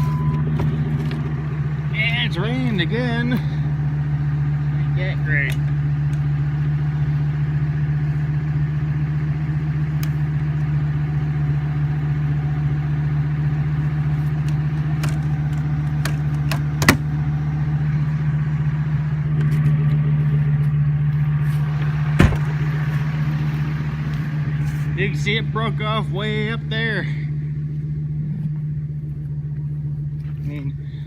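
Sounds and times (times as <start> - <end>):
truck engine running: 0.0 - 31.0
sharp knocks: 22.2 - 22.6.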